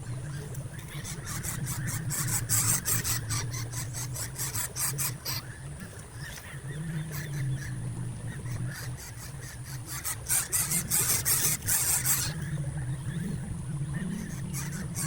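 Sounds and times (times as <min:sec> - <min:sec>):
low hum: 0:05.5 - 0:15.0.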